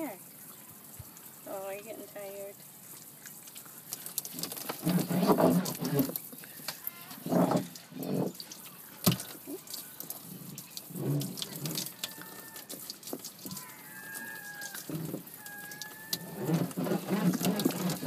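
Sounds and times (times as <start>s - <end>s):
water splashing and dripping: 0.0s - 18.0s.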